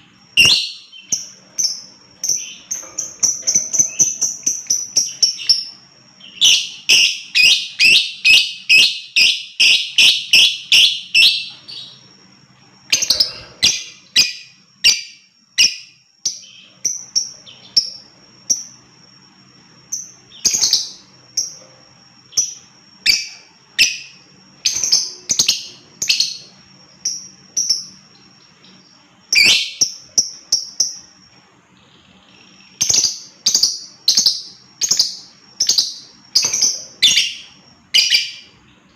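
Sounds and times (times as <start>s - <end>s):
lovebird chirping: 0.1s - 38.9s.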